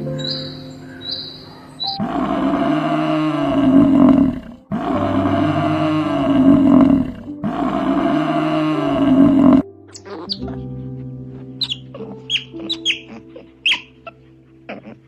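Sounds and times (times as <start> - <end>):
large wild animal roaring: 1.8 - 9.6.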